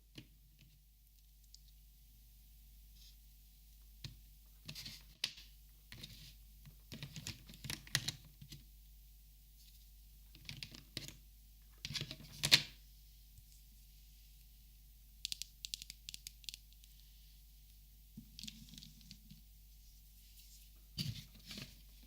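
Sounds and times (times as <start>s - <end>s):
plastic markers clicking and tapping: 15.2s - 16.8s.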